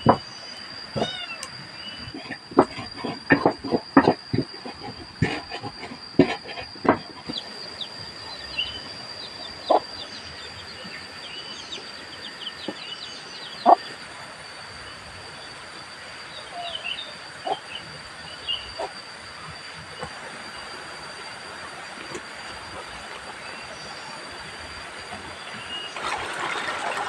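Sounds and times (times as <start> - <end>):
high-pitched insect drone: 0.0 - 26.0
bird chirps: 7.2 - 13.9, 16.3 - 18.9, 25.2 - 25.9.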